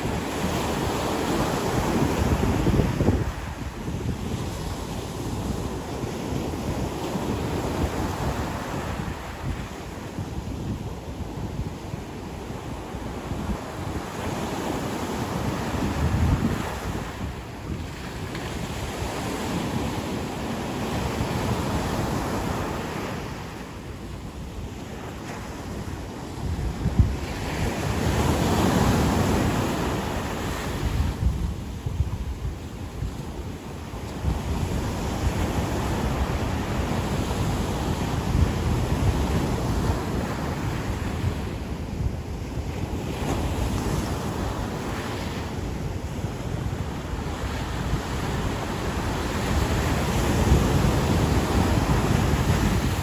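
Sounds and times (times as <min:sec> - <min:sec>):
ocean surf washing onto beach: 0:00.0 - 0:53.0
wind buffeting microphone: 0:00.0 - 0:53.0.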